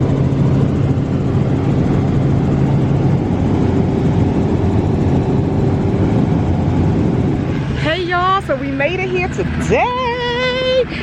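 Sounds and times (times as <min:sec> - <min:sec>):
low hum: 0:00.0 - 0:11.0
vehicle engine noise: 0:00.0 - 0:11.0.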